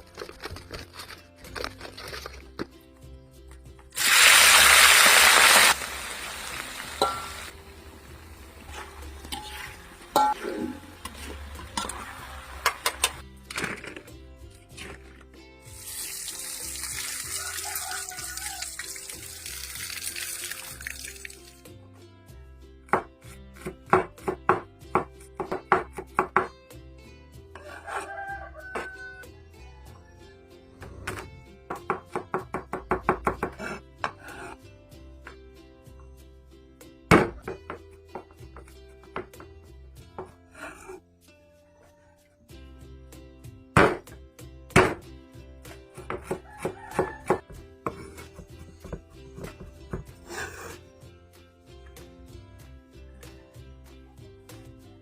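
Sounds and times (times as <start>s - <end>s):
quiet background music: 0.0s - 5.0s, 5.8s - 55.0s
food sizzling in hot oil: 4.0s - 13.2s, 15.7s - 21.6s.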